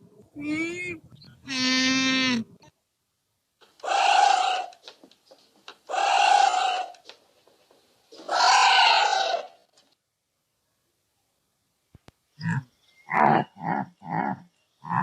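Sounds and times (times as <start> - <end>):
animal giving hoarse breathy calls: 12.4 - 15.0.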